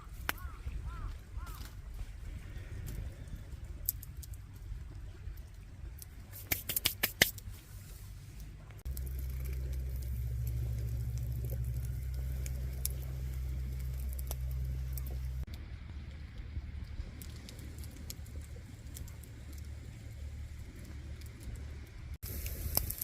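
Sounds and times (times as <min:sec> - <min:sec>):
campfire cracks and snaps: 0:00.0 - 0:08.0, 0:08.6 - 0:23.0
low rumble: 0:07.4 - 0:23.0.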